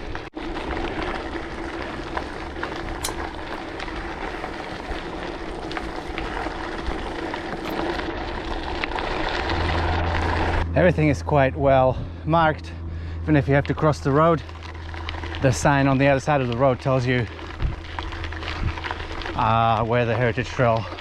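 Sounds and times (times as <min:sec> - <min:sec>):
small bike clicks: 0:00.0 - 0:10.6, 0:14.4 - 0:21.0
lower hum: 0:00.0 - 0:20.0
wind and tyre noise: 0:00.0 - 0:21.0
faint steady hum: 0:09.2 - 0:19.6.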